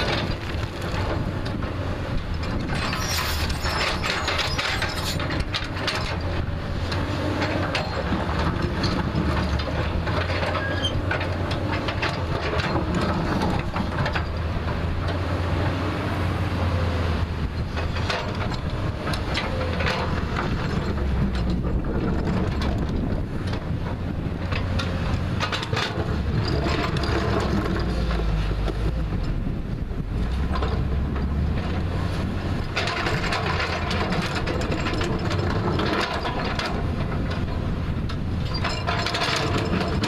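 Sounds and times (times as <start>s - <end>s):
diesel engine running: 0.0s - 40.0s
bucket clanking and scraping: 2.4s - 6.3s, 32.7s - 37.5s, 38.5s - 40.0s.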